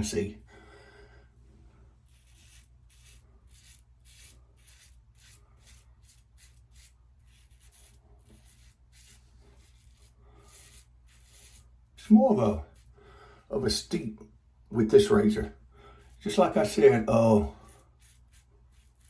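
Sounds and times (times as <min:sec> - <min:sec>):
razor scraping stubble: 0:02.0 - 0:13.0, 0:16.0 - 0:19.0.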